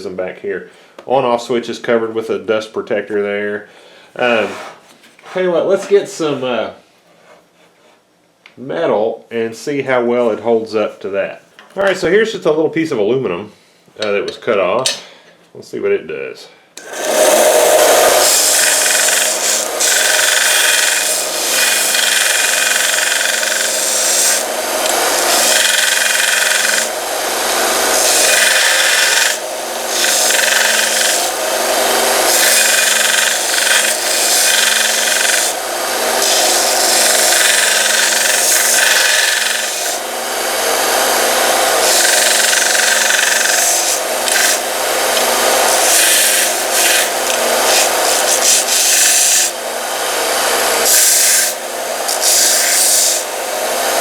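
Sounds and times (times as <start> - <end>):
belt sander motor hum: 16.8 - 54.0
metal grinding on sander belt: 16.8 - 54.0.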